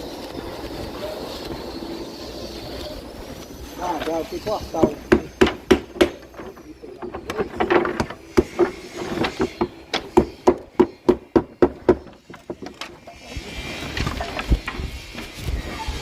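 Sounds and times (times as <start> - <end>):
hammer blows on wood ringing: 4.4 - 12.7.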